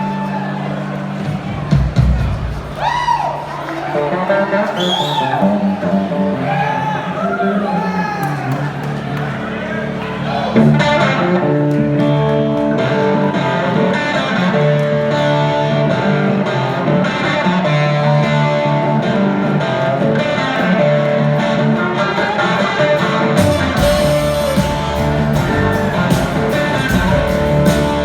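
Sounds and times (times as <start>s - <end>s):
live band instrumental music: 7.8s - 28.0s.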